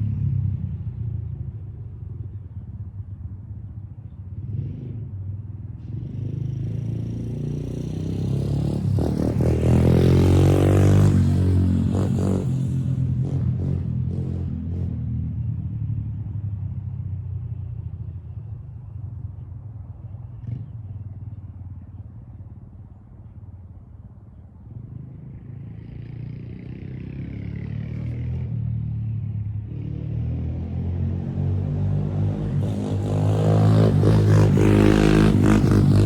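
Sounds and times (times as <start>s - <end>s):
motorcycle engine running: 32.6s - 36.0s.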